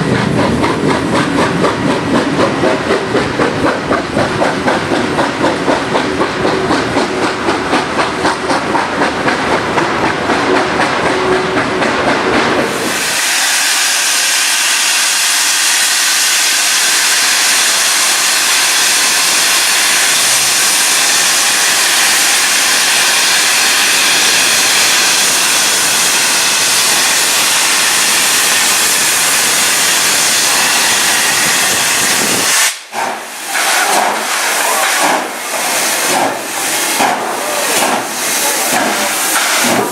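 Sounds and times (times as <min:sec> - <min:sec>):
steam hissing: 0:00.0 - 0:11.6, 0:12.6 - 0:39.9
steam locomotive exhaust chuffs: 0:00.0 - 0:39.9.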